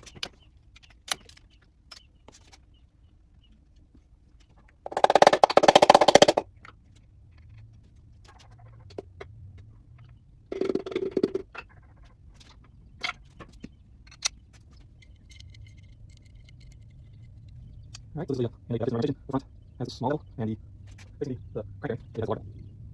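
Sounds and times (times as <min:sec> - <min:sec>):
air impact wrench rattling: 0:04.9 - 0:06.4.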